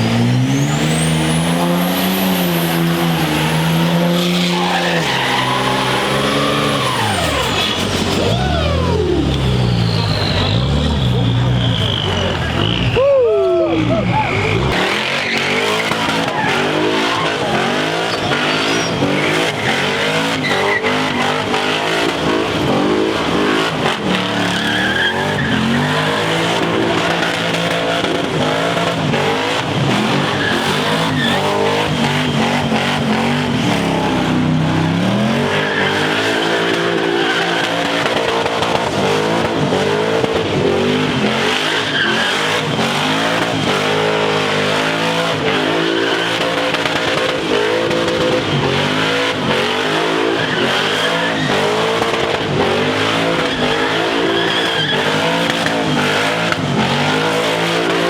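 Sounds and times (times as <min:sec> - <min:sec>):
engine revving: 0:00.0 - 0:13.1, 0:13.7 - 0:58.0
tires squealing: 0:00.0 - 0:58.0.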